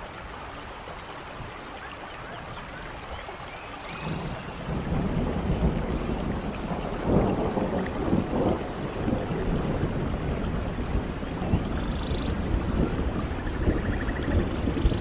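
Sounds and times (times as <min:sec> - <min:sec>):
steady rain: 0:00.0 - 0:15.0
low rumble of thunder: 0:03.8 - 0:15.0.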